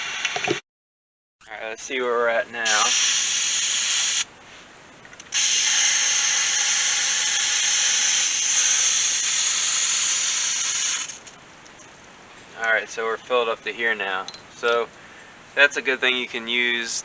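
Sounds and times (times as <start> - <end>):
air hissing out of tire valve: 2.7 - 4.3.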